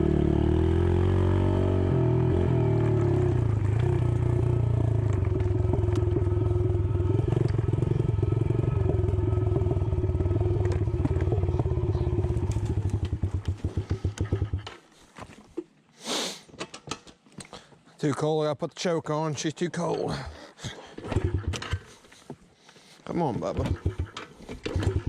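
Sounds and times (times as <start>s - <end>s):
dirt bike engine stalling: 2.8s - 14.9s, 21.0s - 22.0s, 23.4s - 25.0s
short hiss: 16.0s - 16.5s.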